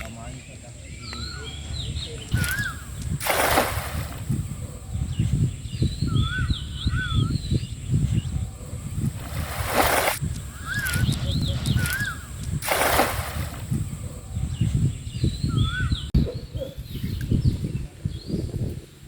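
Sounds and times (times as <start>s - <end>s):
bird warbling whistles: 2.3s - 2.9s, 10.5s - 12.3s
water sloshing and churning: 2.3s - 4.8s, 8.8s - 14.2s
loud splashes: 2.4s - 4.3s, 9.2s - 11.2s, 11.8s - 13.8s.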